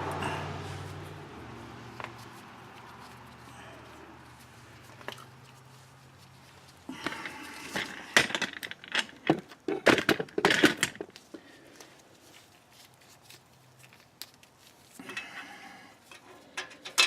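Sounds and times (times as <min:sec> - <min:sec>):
clicks and clatters of car parts: 0:06.9 - 0:11.4, 0:16.0 - 0:17.0.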